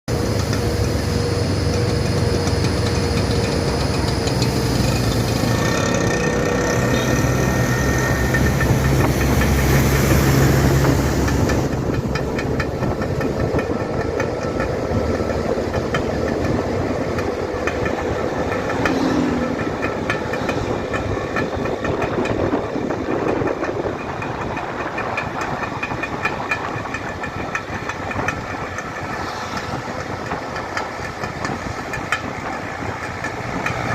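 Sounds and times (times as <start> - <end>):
dump truck engine rumbling: 0.1 - 33.9
scooter engine ticking: 0.1 - 33.9.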